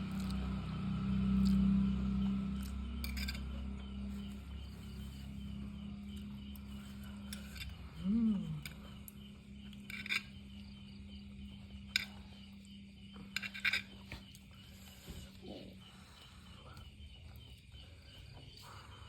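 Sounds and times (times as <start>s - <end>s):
steady low hum: 0.0s - 19.0s
person humming: 8.0s - 8.8s.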